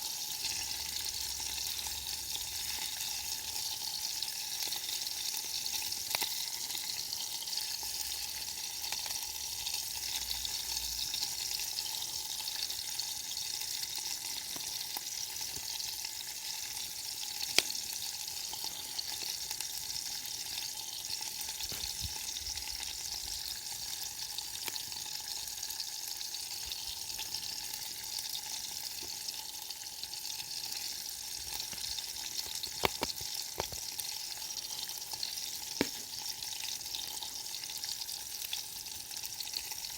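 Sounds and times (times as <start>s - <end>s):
food sizzling over campfire: 0.0s - 39.9s
campfire pops: 17.4s - 17.9s, 21.6s - 22.4s, 31.6s - 33.9s, 35.7s - 36.2s.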